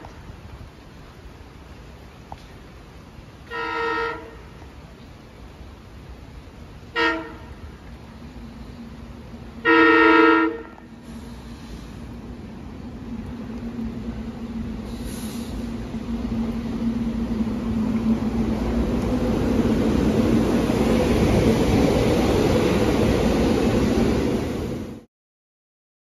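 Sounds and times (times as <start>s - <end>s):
wheel and rail rumble: 0.0s - 25.1s
train motor hum: 4.2s - 25.0s.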